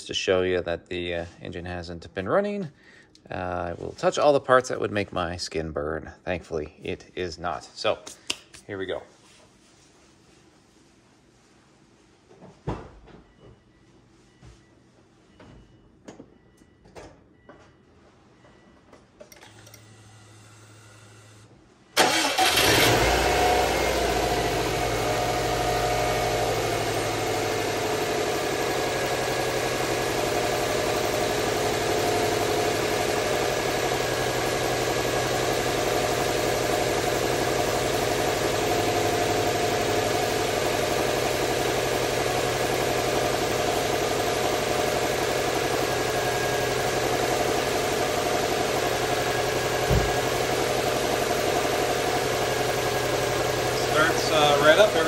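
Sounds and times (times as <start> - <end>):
car engine starting and idling: 22.0 - 55.0.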